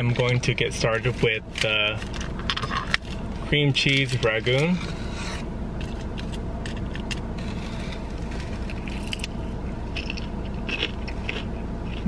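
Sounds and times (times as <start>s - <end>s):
car air conditioning hum: 0.0s - 12.0s
crunchy bites and chewing: 5.8s - 12.0s.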